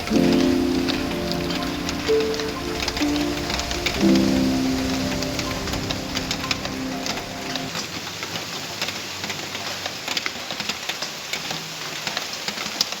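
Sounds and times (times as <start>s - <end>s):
background music: 0.0s - 7.7s
raindrop impacts: 0.0s - 11.2s
rain hiss: 0.0s - 13.0s.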